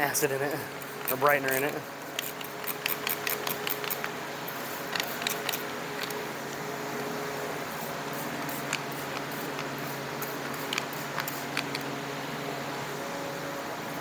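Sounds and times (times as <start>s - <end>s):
steady hum: 0.0s - 14.0s
spray bottle squirts: 7.7s - 11.7s.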